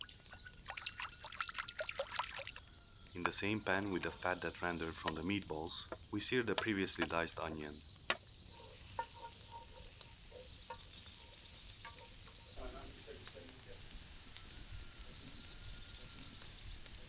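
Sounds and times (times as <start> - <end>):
onion sizzling in a pan: 3.9 - 17.0.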